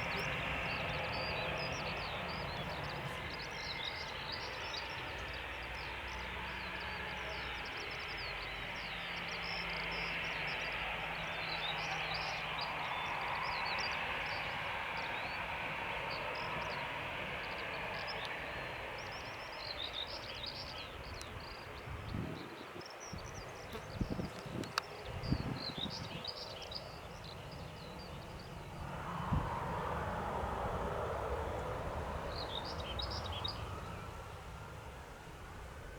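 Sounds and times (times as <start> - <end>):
jet engine rush: 23.3 - 35.9.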